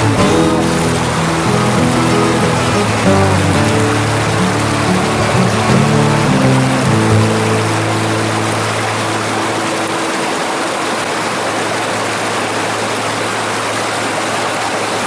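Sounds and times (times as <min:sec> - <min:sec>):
background music: 0:00.0 - 0:10.7
mountain stream rushing: 0:00.0 - 0:15.0.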